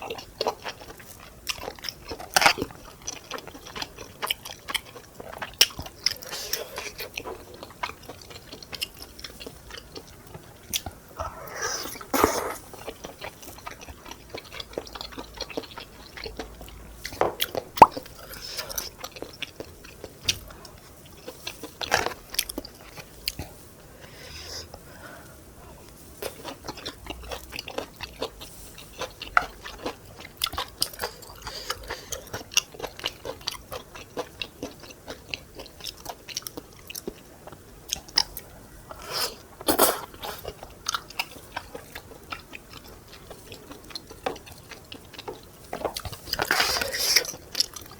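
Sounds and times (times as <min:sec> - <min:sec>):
chewing and biting: 0:00.1 - 0:23.5, 0:26.2 - 0:47.9
wet mouth clicks: 0:17.8 - 0:18.1.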